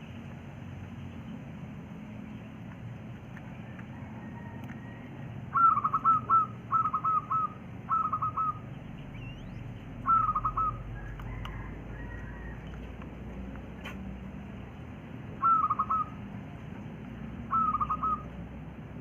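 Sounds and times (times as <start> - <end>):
quail whistled calls: 4.2 - 12.8, 15.3 - 16.4, 17.4 - 18.4.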